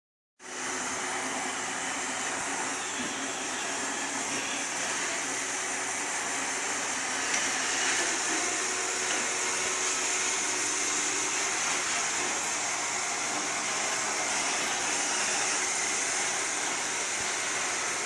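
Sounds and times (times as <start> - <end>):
robot vacuum whirring: 0.7 - 18.0.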